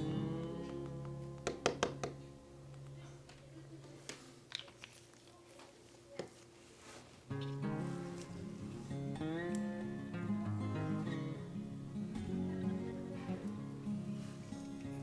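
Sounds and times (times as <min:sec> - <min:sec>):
acoustic guitar music: 0:00.0 - 0:03.8, 0:07.3 - 0:15.0.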